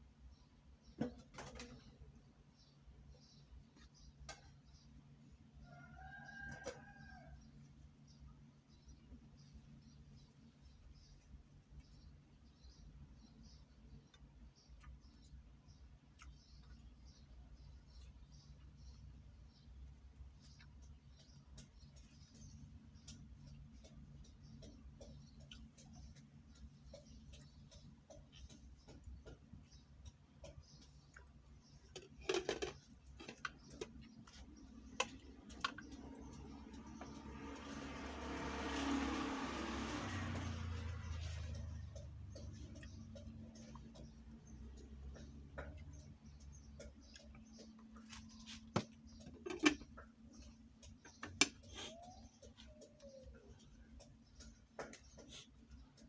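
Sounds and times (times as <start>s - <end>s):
clicks and taps: 20.5s - 37.3s, 41.4s - 56.0s.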